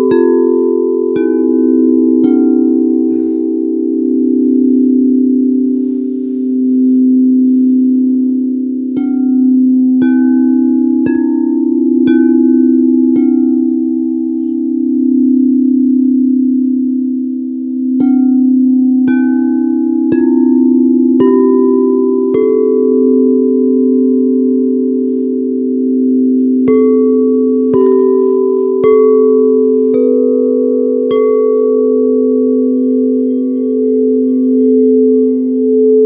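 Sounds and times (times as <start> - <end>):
singing bowls struck: 0.0 - 36.0
steady ringing drone: 0.0 - 36.0.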